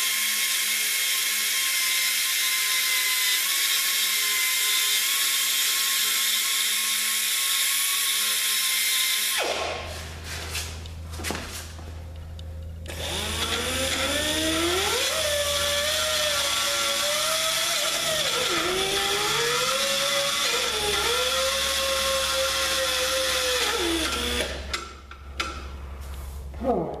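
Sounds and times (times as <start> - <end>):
electric grinder grinding metal: 12.9 - 24.6.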